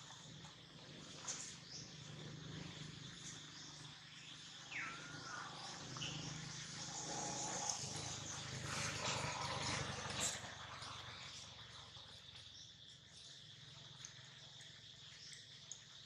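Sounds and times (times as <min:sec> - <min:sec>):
high bird chirps: 0:04.3 - 0:06.8.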